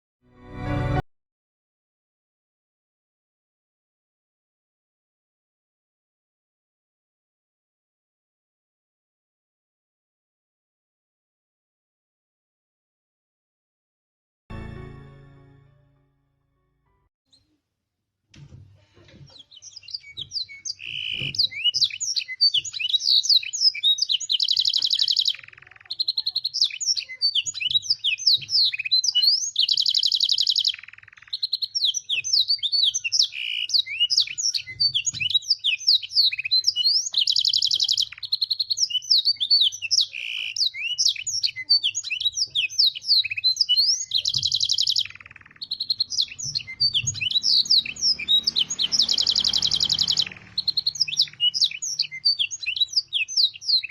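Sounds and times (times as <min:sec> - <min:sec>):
canary singing chirps and trills: 0:19.2 - 0:53.9.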